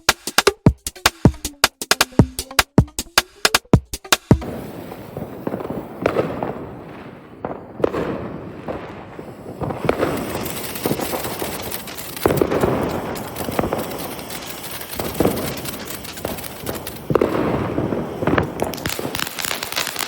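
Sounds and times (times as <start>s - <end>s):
fireworks bangs: 4.3s - 20.0s
fireworks crackle and hiss: 4.4s - 20.0s.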